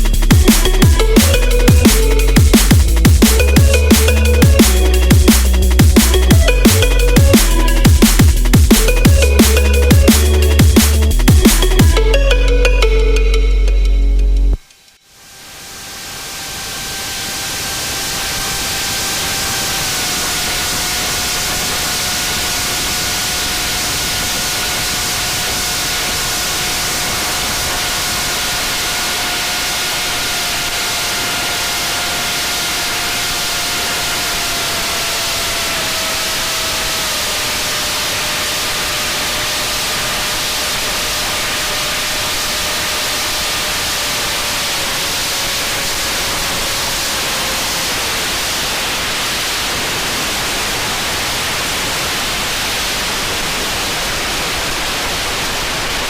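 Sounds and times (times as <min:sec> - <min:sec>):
electric motor and propeller whine: 0:14.9 - 0:53.6.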